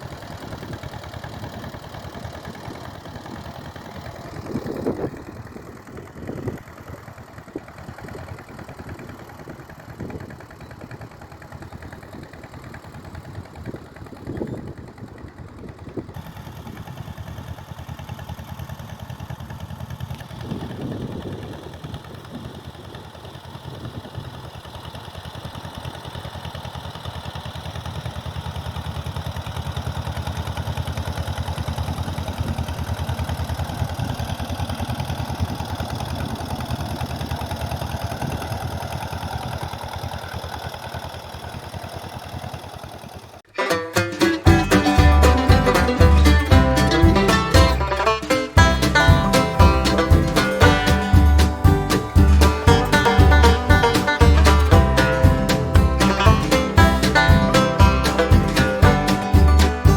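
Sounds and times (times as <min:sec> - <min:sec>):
tractor engine idling: 0:00.0 - 0:59.9.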